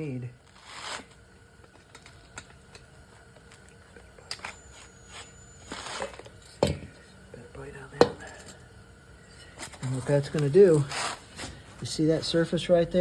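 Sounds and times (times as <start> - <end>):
scuffing rustle: 9.6 - 11.9.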